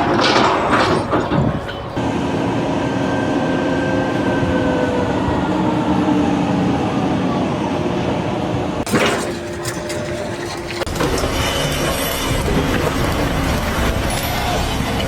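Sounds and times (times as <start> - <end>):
loud irregular clattering: 0.0 - 2.0, 8.8 - 14.2
rumbling machine noise: 0.0 - 15.0.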